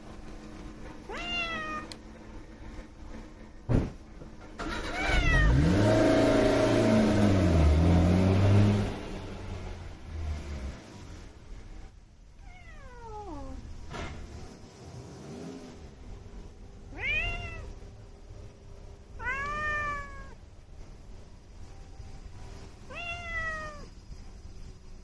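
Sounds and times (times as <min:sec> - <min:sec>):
cat meowing: 0:01.1 - 0:02.0, 0:04.6 - 0:05.6, 0:12.4 - 0:13.7, 0:16.9 - 0:17.8, 0:19.2 - 0:20.4, 0:22.8 - 0:24.0.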